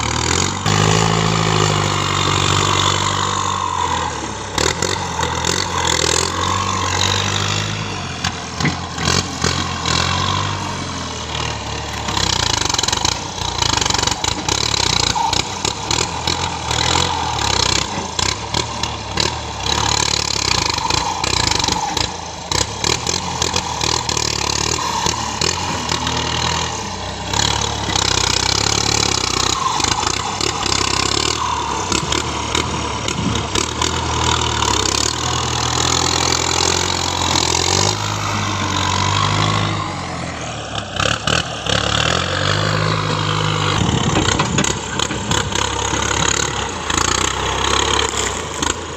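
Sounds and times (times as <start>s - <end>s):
engine running: 0.0s - 48.9s
sharp knocks and clatters: 43.8s - 48.7s.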